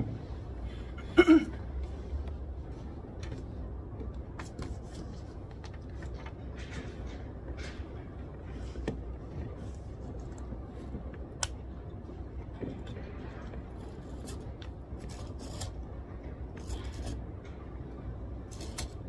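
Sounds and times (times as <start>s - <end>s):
low hum: 0.0s - 19.0s
paper rustling: 4.3s - 7.7s.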